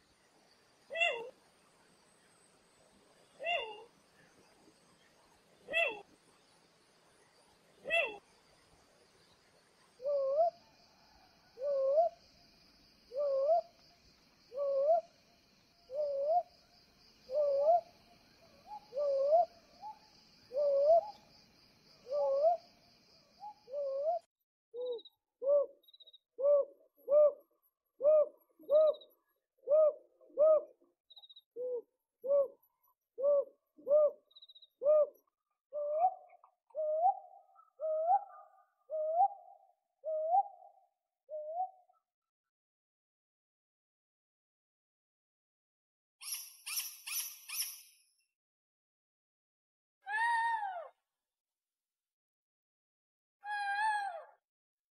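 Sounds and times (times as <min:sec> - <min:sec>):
owl hooting: 0:00.9 - 0:01.3, 0:05.7 - 0:06.1, 0:07.8 - 0:08.2, 0:10.0 - 0:10.6, 0:11.6 - 0:12.2, 0:13.1 - 0:13.7, 0:14.5 - 0:15.1, 0:15.9 - 0:16.5, 0:17.3 - 0:17.9, 0:18.6 - 0:21.2, 0:22.0 - 0:22.7, 0:23.4 - 0:24.2, 0:28.0 - 0:29.0, 0:29.6 - 0:30.8, 0:33.2 - 0:34.2, 0:34.8 - 0:35.2, 0:35.8 - 0:36.2, 0:36.8 - 0:41.8.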